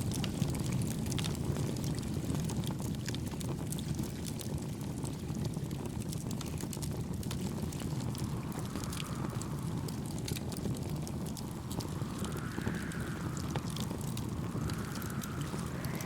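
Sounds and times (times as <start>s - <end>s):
campfire crackling and popping: 0.0s - 16.0s
wind: 0.0s - 16.0s
gentle waves: 7.2s - 16.0s.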